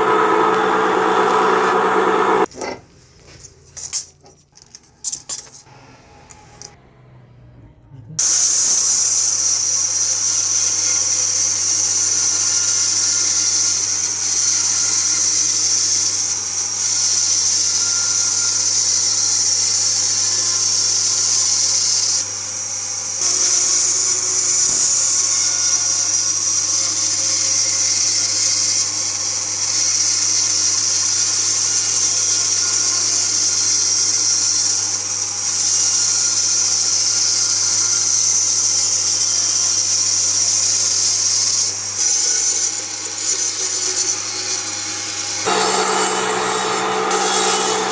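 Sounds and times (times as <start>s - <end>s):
power tool cutting wood: 0.0s - 2.5s, 40.0s - 47.9s.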